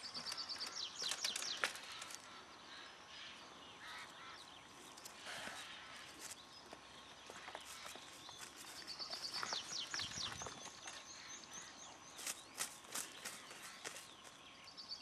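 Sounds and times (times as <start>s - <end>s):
light rustles and clicks: 0.0s - 2.3s
small songbird singing: 0.0s - 15.0s.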